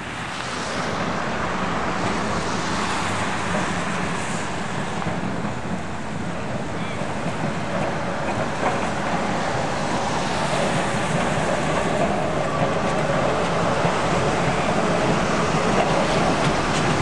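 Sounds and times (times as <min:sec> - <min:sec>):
tram wheels rumbling on rail: 0:00.0 - 0:17.0.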